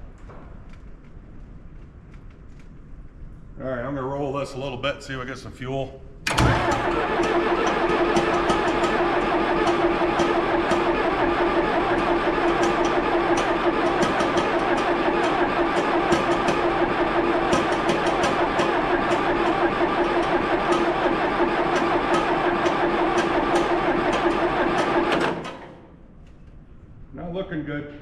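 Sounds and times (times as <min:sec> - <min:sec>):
diesel engine cranking on starter: 0:06.2 - 0:25.9.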